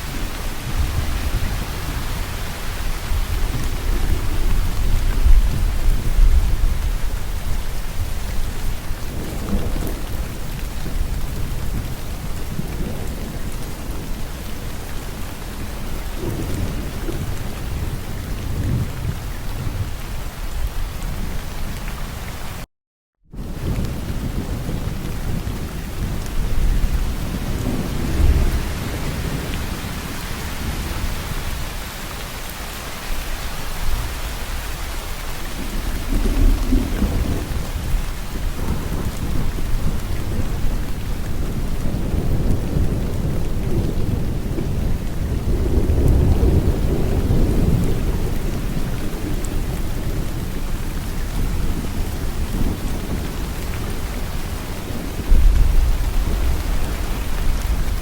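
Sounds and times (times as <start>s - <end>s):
steady rain falling: 0.0s - 22.7s, 23.3s - 58.0s
rolls of thunder: 35.5s - 58.0s.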